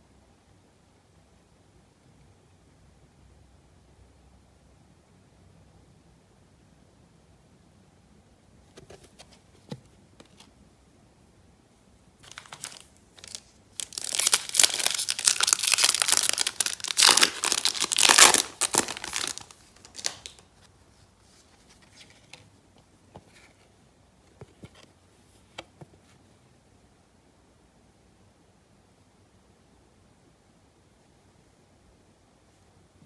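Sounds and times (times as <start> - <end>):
wrapper tearing and crinkling: 12.2 - 20.4.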